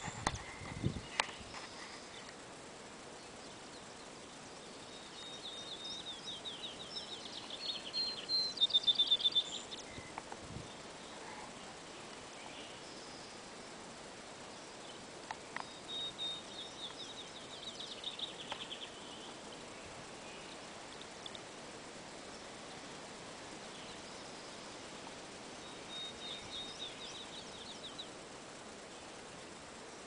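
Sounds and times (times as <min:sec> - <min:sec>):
steady outdoor hiss: 0:00.0 - 0:30.0
bird singing: 0:03.0 - 0:13.8, 0:14.4 - 0:28.2.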